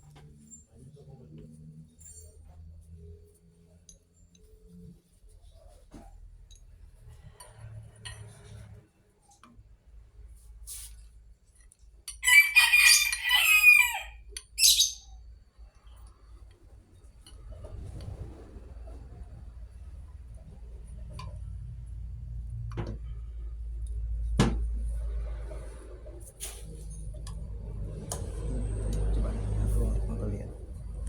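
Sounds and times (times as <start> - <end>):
rooster crowing: 12.2 - 14.3.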